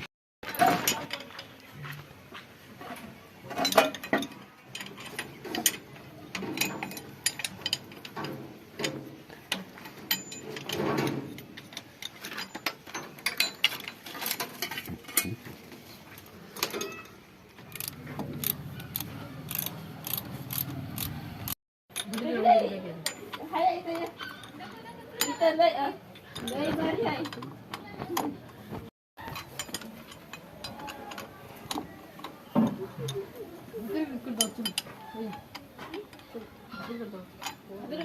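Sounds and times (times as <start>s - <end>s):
metal tools clinking on metal: 0.4s - 1.9s, 2.8s - 15.6s, 16.4s - 28.3s, 29.2s - 38.0s
ratchet clicks: 17.7s - 22.3s.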